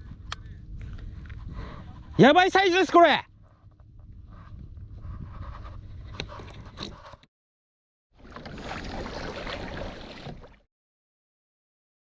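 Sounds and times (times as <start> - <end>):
wind noise: 0.0 - 7.2
water noise: 8.2 - 10.6.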